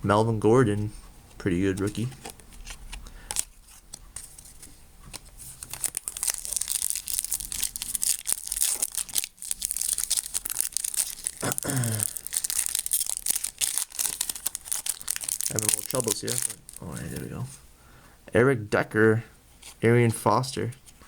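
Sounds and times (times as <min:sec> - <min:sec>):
foil wrapper crinkling and tearing: 0:05.4 - 0:17.4.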